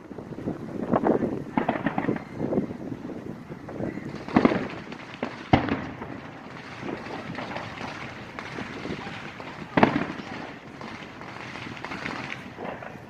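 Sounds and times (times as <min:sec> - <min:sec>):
firework sharp crack: 0:00.0 - 0:13.0
firework bang: 0:00.8 - 0:02.8, 0:03.6 - 0:13.0.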